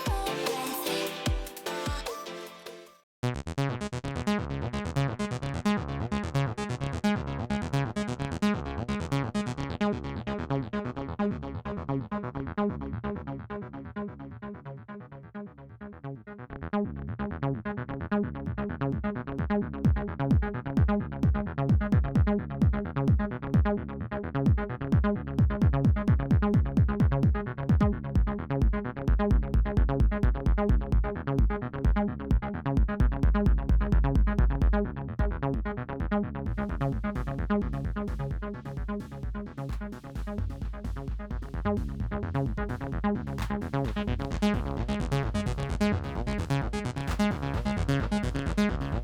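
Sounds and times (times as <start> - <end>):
heavy low kick drum: 0.0 - 0.4, 19.0 - 23.8, 24.4 - 49.0
synth bass line: 0.0 - 2.2, 3.2 - 15.0, 15.8 - 49.0
drum machine beat: 0.0 - 2.5, 19.9 - 23.7, 24.5 - 34.8, 36.5 - 49.0.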